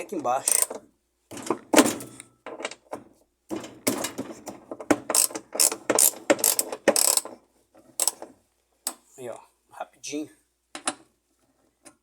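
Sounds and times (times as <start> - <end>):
ratchet wrench clicking: 0.4 - 0.7, 5.1 - 7.2, 8.0 - 8.2.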